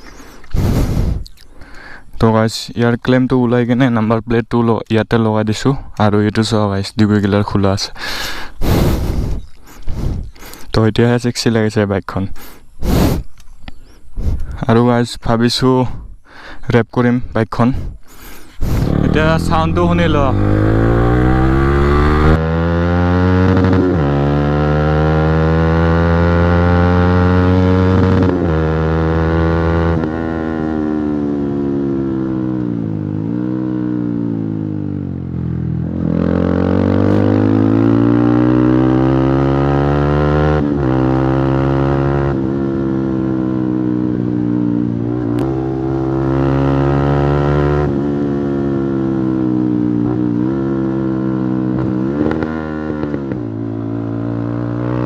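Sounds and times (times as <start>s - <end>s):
motorcycle engine revving through gears: 18.6s - 55.0s.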